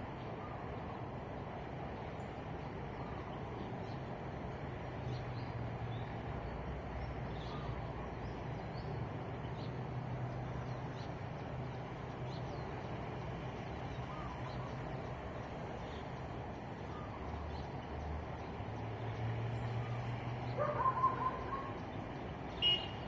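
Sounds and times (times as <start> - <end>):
low hum of traffic: 0.0 - 23.0
birds chirping: 13.8 - 23.0.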